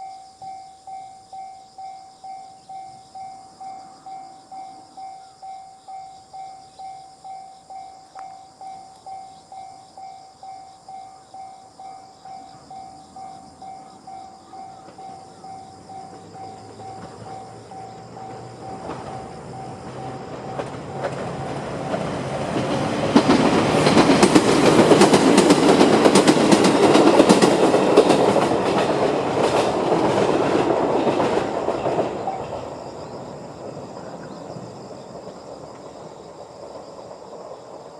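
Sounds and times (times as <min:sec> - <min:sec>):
crossing electronic warning bell: 0:00.0 - 0:23.4
electric train passing: 0:00.0 - 0:37.9.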